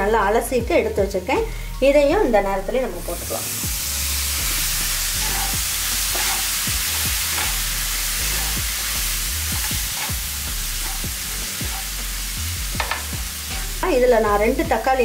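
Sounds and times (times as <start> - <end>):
vegetables sizzling in oil: 2.6 - 15.0
wooden spatula scraping pan: 5.2 - 11.9.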